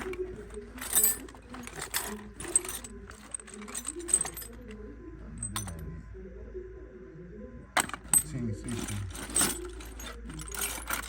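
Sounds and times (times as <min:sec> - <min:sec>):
metal hand tools clinking: 0:00.0 - 0:04.8, 0:05.4 - 0:05.8, 0:07.8 - 0:11.0
steel sockets clattering: 0:00.0 - 0:04.8, 0:05.4 - 0:05.8, 0:07.8 - 0:11.0.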